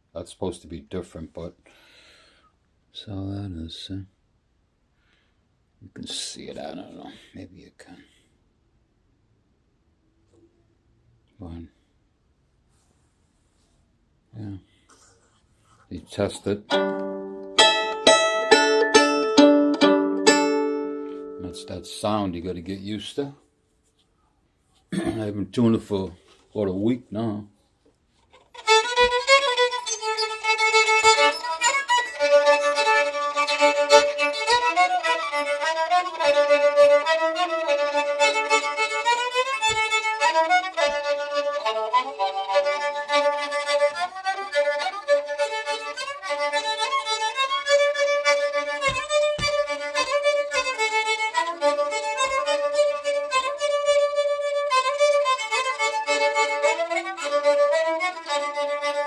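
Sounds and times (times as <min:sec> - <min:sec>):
fiddle tune played with bow: 0:16.2 - 0:22.9, 0:28.3 - 0:59.0.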